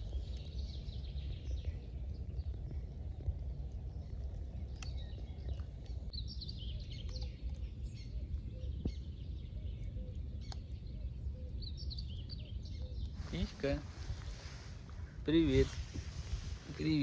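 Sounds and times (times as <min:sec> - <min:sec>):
low outdoor rumble: 0:00.0 - 0:17.0
small birds chirping: 0:00.0 - 0:17.0
faint clicks: 0:04.7 - 0:06.0.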